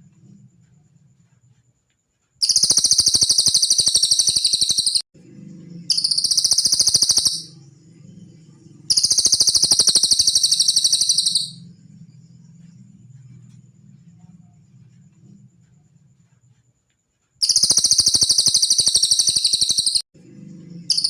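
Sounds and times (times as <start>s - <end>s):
high-pitched rapid trill: 2.4s - 5.0s, 5.9s - 7.6s, 8.9s - 11.6s, 17.4s - 20.0s
low hum: 5.2s - 9.0s, 10.5s - 16.3s, 20.2s - 21.0s.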